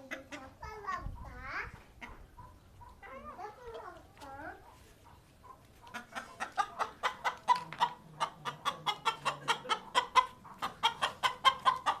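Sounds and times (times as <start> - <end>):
chicken clucking: 0.0 - 12.0.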